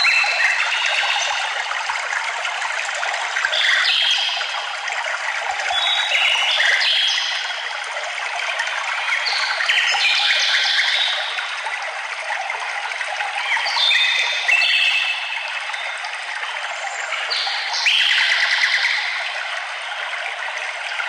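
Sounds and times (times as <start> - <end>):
flowing water: 0.0 - 21.0
songbirds singing: 13.4 - 16.0.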